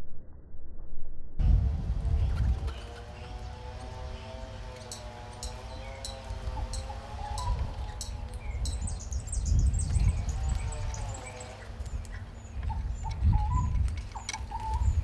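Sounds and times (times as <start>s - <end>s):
low rumble: 0.0s - 2.9s
warbling bird call: 2.2s - 15.0s.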